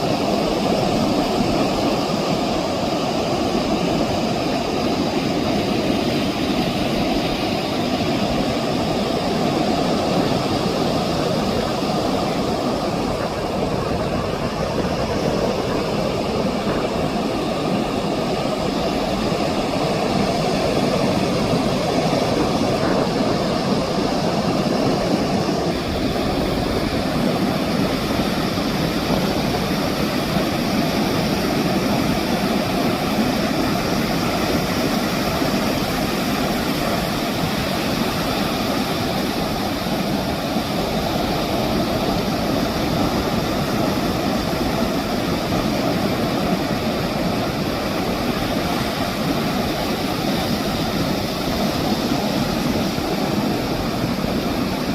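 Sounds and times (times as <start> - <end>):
surf breaking on beach: 0.0 - 54.9.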